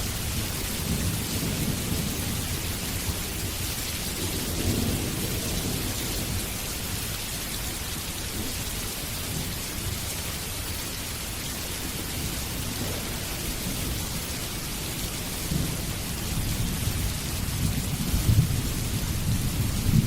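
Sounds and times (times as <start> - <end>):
heavy rain: 0.0 - 20.0
low rolling thunder: 0.1 - 6.9, 11.9 - 20.0.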